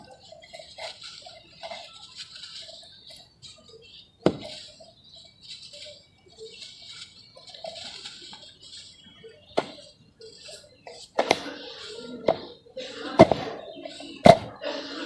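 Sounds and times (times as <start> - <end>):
grains pattering: 0.0 - 12.1
sharp crack: 13.2 - 14.6.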